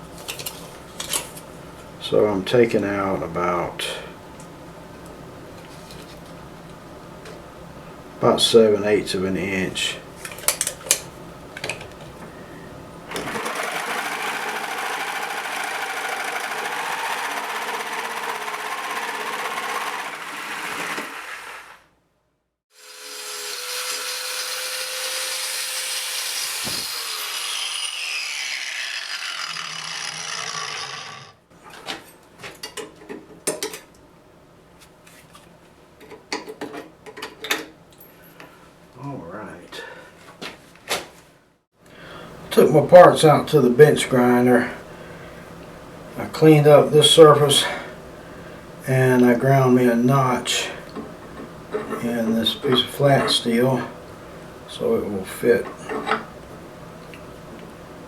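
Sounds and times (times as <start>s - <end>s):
power grinder grinding steel: 13.1s - 21.8s, 22.8s - 31.4s.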